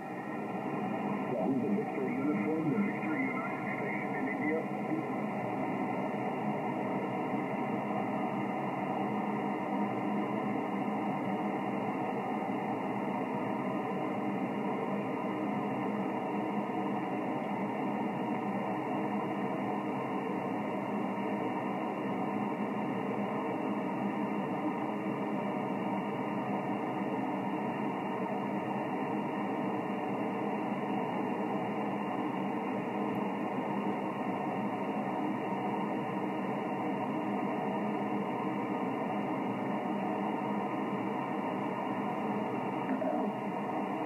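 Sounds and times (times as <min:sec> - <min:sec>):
radio static hiss: 0:00.0 - 0:08.1, 0:38.6 - 0:44.0.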